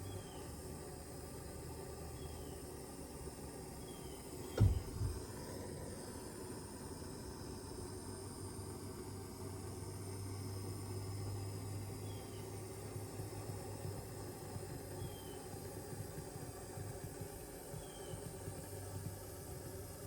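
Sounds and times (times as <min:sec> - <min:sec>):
dull low thud: 0:04.5 - 0:05.3.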